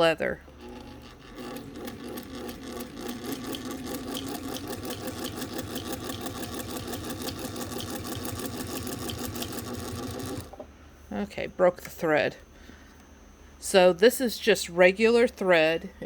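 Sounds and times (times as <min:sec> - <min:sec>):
sewing machine stitching: 0:00.5 - 0:10.6.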